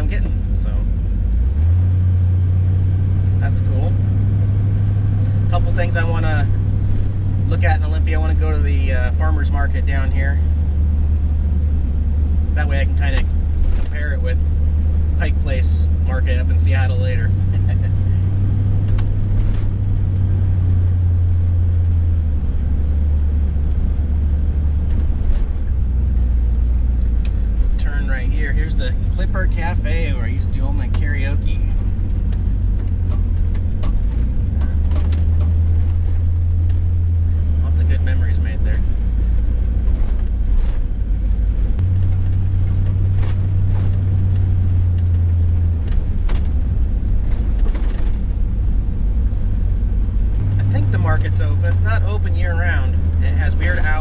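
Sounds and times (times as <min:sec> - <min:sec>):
van engine and road noise: 0:00.0 - 0:54.0
light rattles and clicks: 0:12.6 - 0:54.0.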